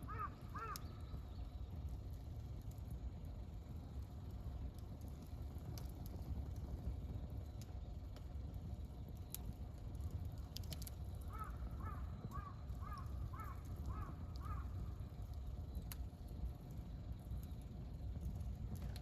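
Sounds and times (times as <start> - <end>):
crow cawing: 0.0 - 0.9, 11.3 - 14.8
campfire crackling: 0.0 - 19.0.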